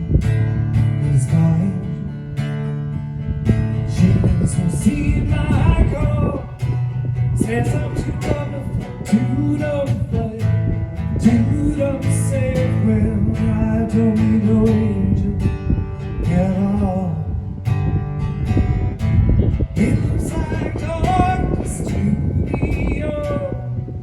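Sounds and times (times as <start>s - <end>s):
acoustic guitar strumming: 0.0s - 24.0s
person singing: 4.0s - 6.8s, 7.4s - 10.6s, 19.8s - 23.8s.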